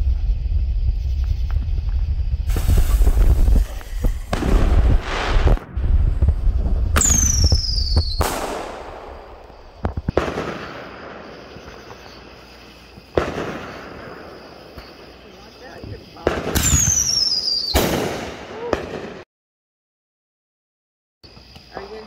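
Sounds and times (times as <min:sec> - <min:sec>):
falling firework whistle: 0:00.0 - 0:12.4, 0:16.2 - 0:19.2
firework bangs: 0:00.0 - 0:19.2
firework hiss: 0:00.0 - 0:19.2
firework pops: 0:01.0 - 0:12.2, 0:12.9 - 0:15.1, 0:15.7 - 0:19.2.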